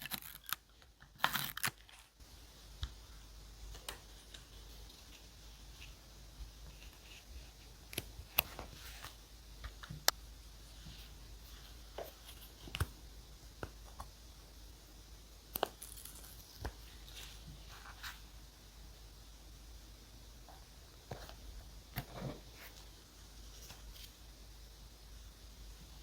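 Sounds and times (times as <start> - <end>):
paper rustling: 22.0 - 24.2.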